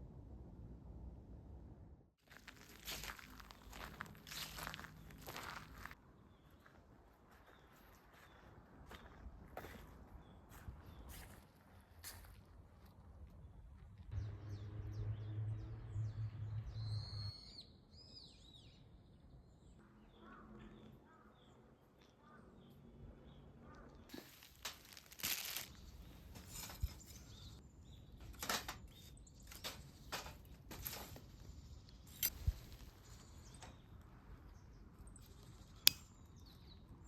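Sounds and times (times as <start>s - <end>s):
small birds chirping: 2.3s - 12.2s, 15.9s - 37.0s
low hum: 14.0s - 17.6s
rustles and knocks: 24.2s - 31.4s.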